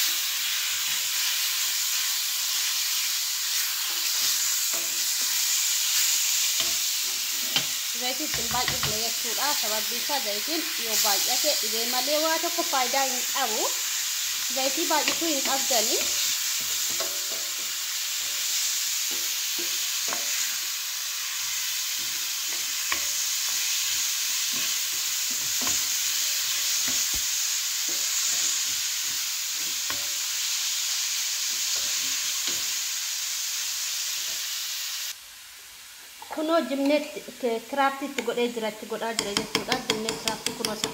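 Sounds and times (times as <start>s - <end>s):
food sizzling in oil: 0.0s - 40.9s
utensil stirring knocks: 8.3s - 9.1s, 39.2s - 40.9s.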